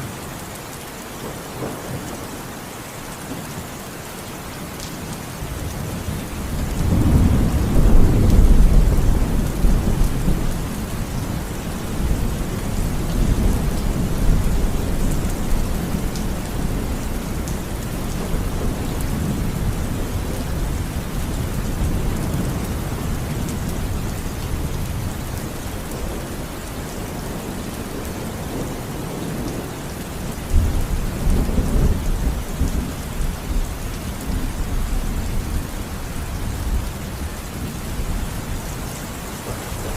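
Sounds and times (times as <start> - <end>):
steady rain: 0.0 - 39.9
rolling thunder: 5.8 - 26.4, 30.4 - 39.9.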